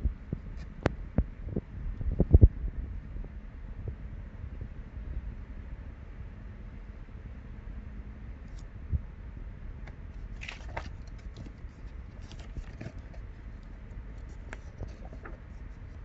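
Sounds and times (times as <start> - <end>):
steady low rumble: 0.0 - 16.0
small clicks and scrapes: 9.8 - 16.0.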